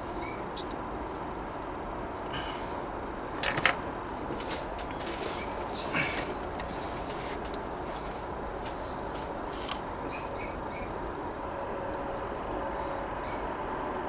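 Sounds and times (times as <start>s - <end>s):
low background hum: 0.0s - 14.0s
bird chirping: 0.2s - 0.6s, 5.3s - 9.3s, 10.1s - 11.0s, 13.2s - 13.6s.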